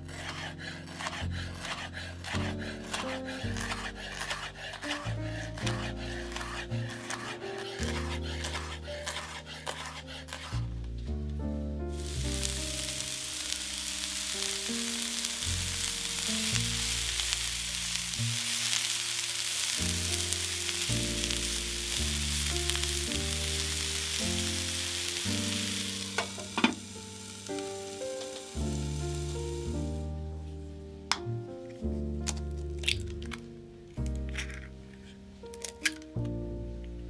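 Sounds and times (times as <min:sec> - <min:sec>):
food sizzling in oil: 0:00.1 - 0:10.5, 0:11.9 - 0:30.1.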